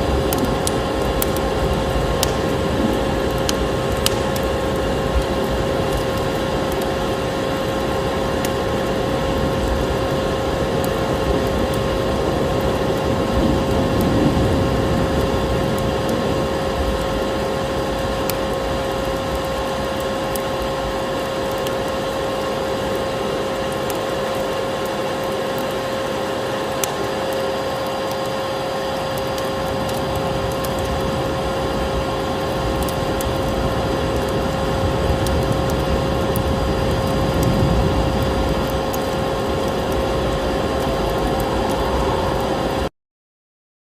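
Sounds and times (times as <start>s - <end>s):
small crackles: 0.0s - 25.8s, 26.4s - 42.8s
vacuum cleaner running: 21.0s - 42.9s.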